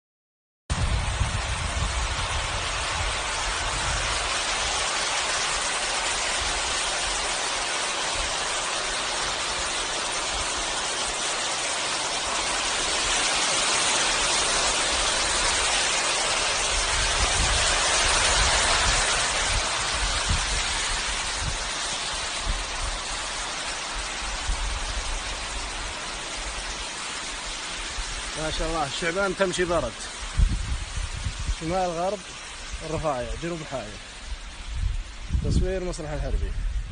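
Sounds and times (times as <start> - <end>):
wind buffeting microphone: 0.7 - 10.8, 12.4 - 36.9
rushing flood water: 0.7 - 36.9.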